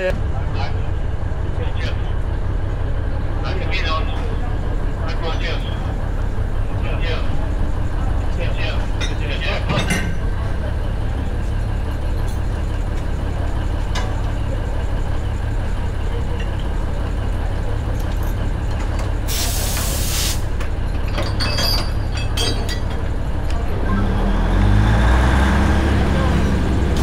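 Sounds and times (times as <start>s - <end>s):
train running with low rumble: 0.0s - 27.0s
air brake hiss: 19.3s - 20.4s.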